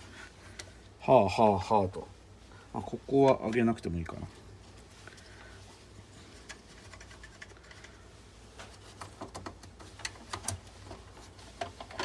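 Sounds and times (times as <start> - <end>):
low steady hum: 0.0 - 12.0
hands clicking and tapping pc parts: 6.4 - 8.0, 8.7 - 11.0.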